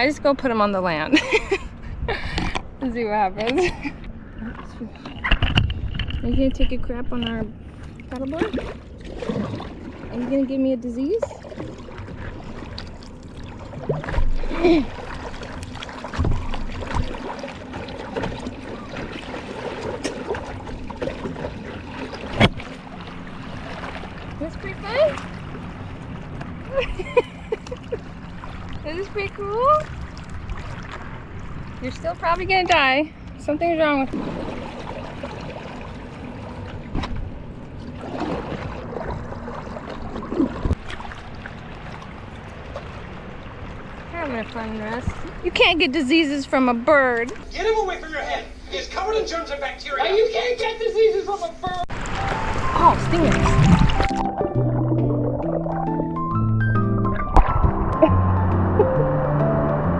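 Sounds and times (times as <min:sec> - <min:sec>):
water lapping and splashing: 0:00.0 - 0:58.9
low thump: 0:16.2 - 0:17.1, 0:57.0 - 0:59.1.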